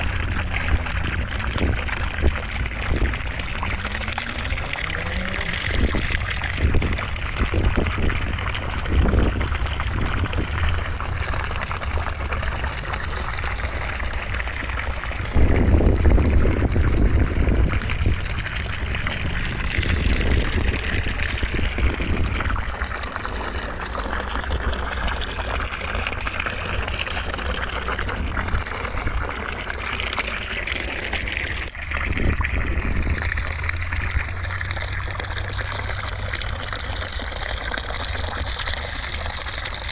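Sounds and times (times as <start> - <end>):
running water rushing: 0.0 - 39.9
low rumble: 15.3 - 23.0.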